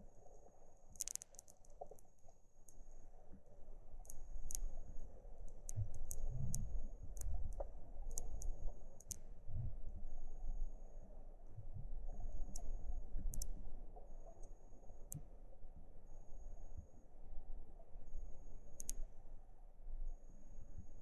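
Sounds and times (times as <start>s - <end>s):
muffled rumble of water: 0.0s - 21.0s
sharp underwater clicks: 0.9s - 9.4s, 12.1s - 15.3s, 18.7s - 19.1s.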